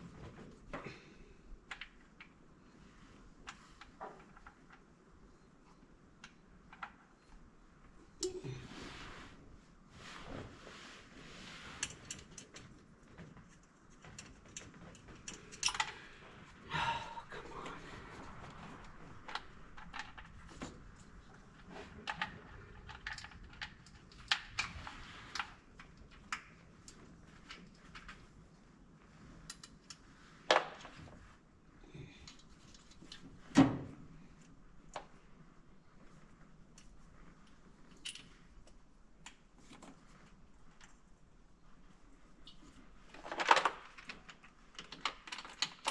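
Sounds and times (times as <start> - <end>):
tools clicking and clinking: 13.5 - 16.1.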